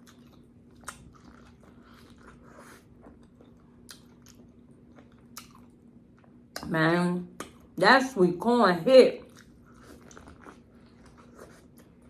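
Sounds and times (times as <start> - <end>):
chewing sweet corn: 0.0 - 6.7, 9.2 - 12.0
faint steady hum: 0.0 - 12.0.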